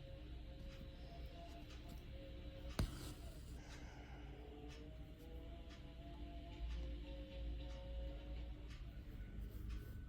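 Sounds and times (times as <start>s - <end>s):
thread rasping through fabric: 2.8s - 3.6s.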